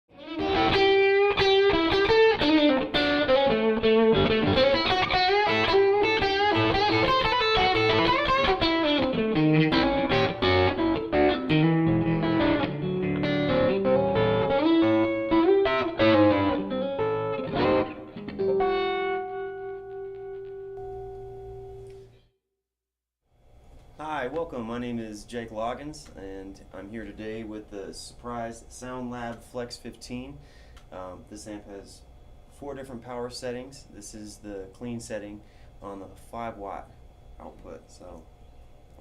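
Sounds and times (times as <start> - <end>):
electric guitar blues licks: 0.1 - 22.0
ringing guitar chord: 0.2 - 22.1.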